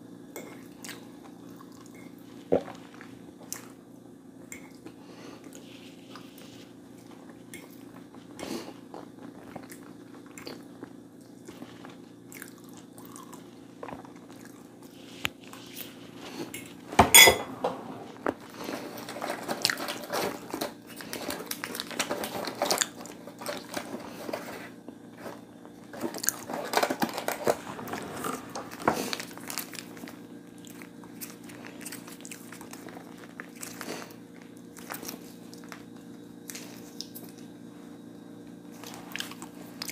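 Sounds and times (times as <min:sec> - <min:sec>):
steady low hum: 0:00.0 - 0:22.4, 0:23.0 - 0:39.9
chewing with wet mouth sounds: 0:00.5 - 0:03.8, 0:04.6 - 0:16.5, 0:29.1 - 0:37.5, 0:38.8 - 0:39.9.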